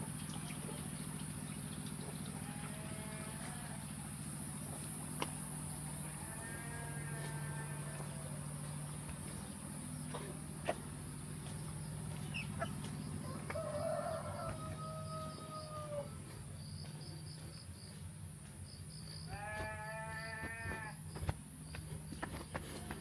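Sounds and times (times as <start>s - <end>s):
high insect drone: 0.1s - 23.0s
rooster crowing: 13.2s - 16.3s.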